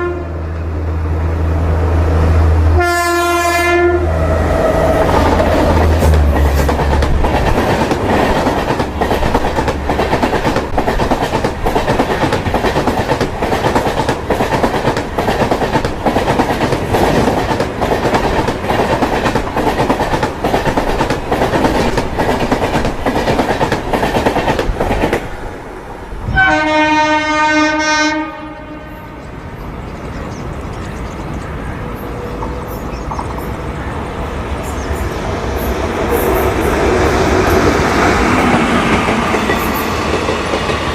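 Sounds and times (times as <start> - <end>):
train horn: 0.0 - 0.5, 2.6 - 5.3, 26.3 - 29.3
quiet train rumble: 0.0 - 40.9
train wheels clattering: 4.9 - 25.3, 35.5 - 40.9.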